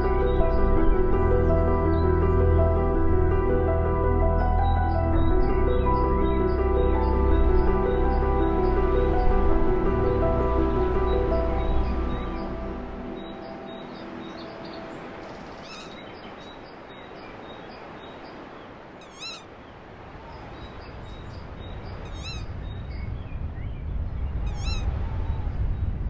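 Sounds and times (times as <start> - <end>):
low rumble: 0.0 - 13.5
steady outdoor hiss: 0.0 - 25.1
bird calling: 13.2 - 16.6, 19.0 - 19.5, 22.0 - 22.5, 24.5 - 24.9.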